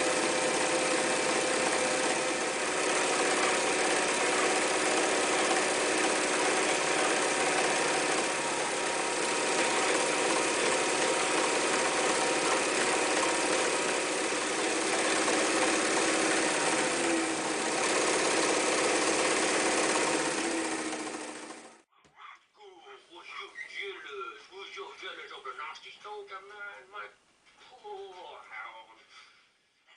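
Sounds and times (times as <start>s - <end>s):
electric sewing machine stitching: 0.0s - 21.9s.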